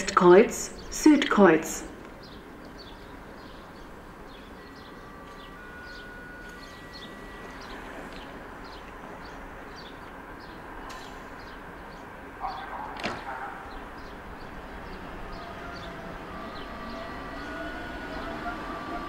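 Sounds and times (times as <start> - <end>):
train pulling away rising pitch: 2.3 - 12.2, 13.8 - 19.0.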